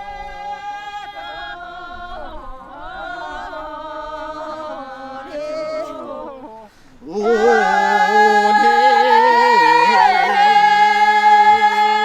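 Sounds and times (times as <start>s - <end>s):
person singing long notes: 5.2s - 12.0s.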